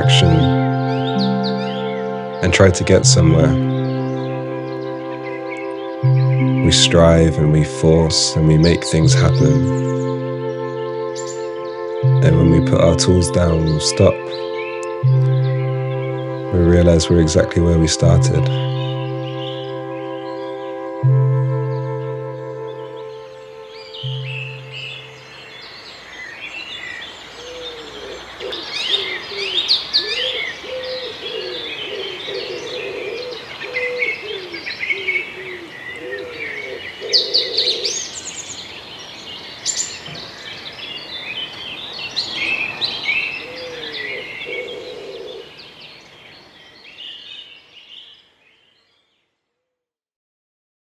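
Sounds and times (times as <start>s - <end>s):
wavering hooting call: 0.0s - 25.6s, 27.4s - 38.1s
ambient music drone: 0.0s - 25.8s
birds chirping and trilling: 0.0s - 49.2s.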